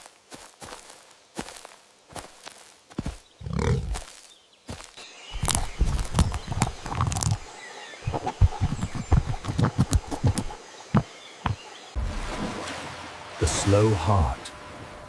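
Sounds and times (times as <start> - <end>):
animal footsteps: 0.0 - 12.0.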